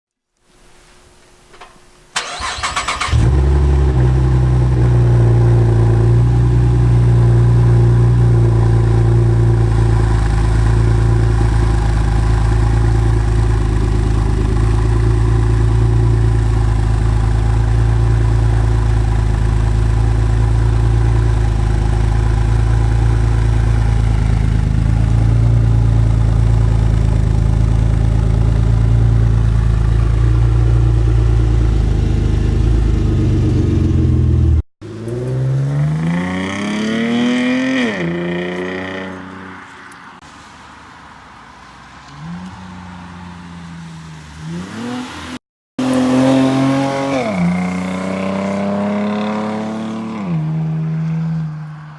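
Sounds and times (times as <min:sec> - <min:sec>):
engine cranking and starting: 0:02.2 - 0:03.8
engine idling with deep exhaust: 0:05.3 - 0:34.6.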